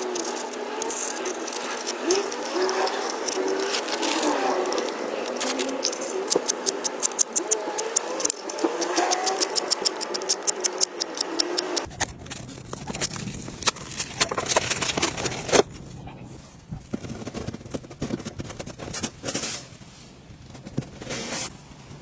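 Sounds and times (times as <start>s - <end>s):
tool scraping plaster wall: 0.0s - 11.9s.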